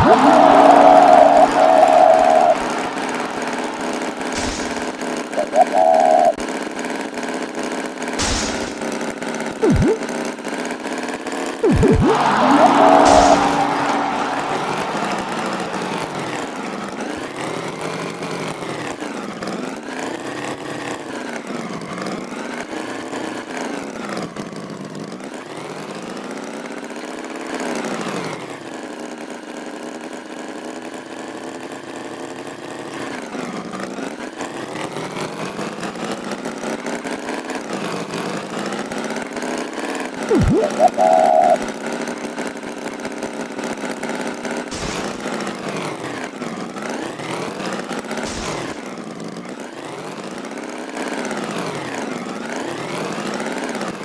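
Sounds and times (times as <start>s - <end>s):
engine revving up and down: 0.0s - 5.0s, 11.6s - 17.1s, 44.7s - 45.3s
short loud sound: 0.0s - 5.5s, 8.2s - 8.9s, 11.6s - 17.2s, 40.3s - 41.6s, 44.7s - 45.4s, 48.3s - 48.8s.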